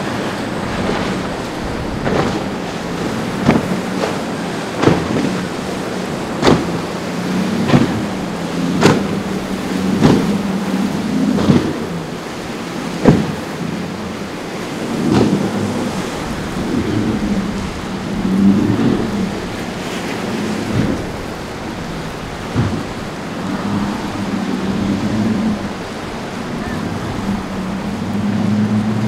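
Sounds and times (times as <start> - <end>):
boat engines droning: 0.0 - 29.0
rushing waves: 0.0 - 29.0.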